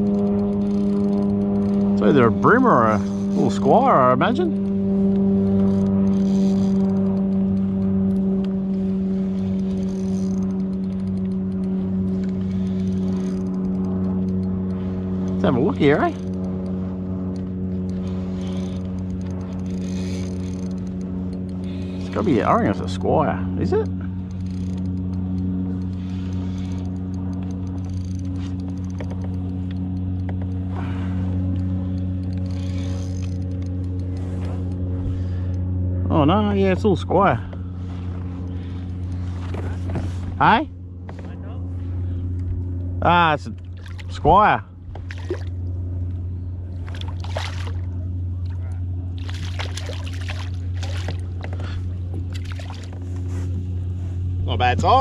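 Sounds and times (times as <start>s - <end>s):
handling clicks and rustles: 0.0s - 30.7s
motor hum: 0.0s - 55.0s.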